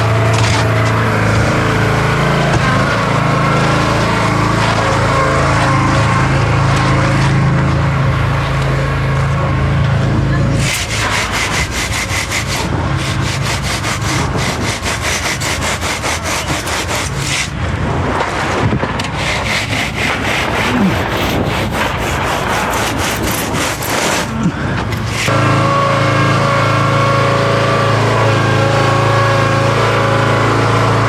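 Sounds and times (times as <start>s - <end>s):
hand tool rasping strokes: 10.5s - 17.6s, 19.0s - 25.4s.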